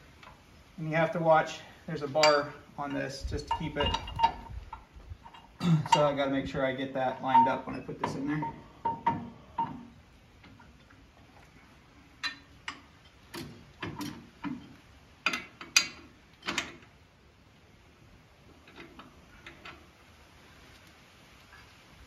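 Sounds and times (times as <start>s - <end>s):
metal-on-metal clicks and knocks: 2.2s - 6.6s, 7.2s - 11.0s, 12.2s - 16.9s, 18.6s - 19.9s.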